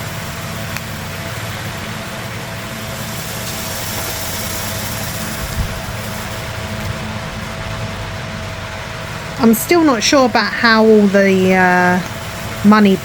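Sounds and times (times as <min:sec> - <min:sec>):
faint whine and hiss: 0:00.0 - 0:13.0
low mechanical hum: 0:00.0 - 0:13.0.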